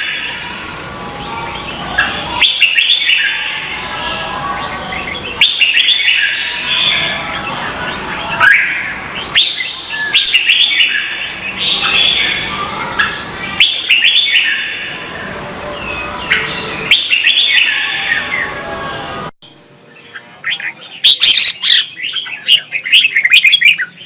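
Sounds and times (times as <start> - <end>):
bulbul singing: 0.0 - 18.7.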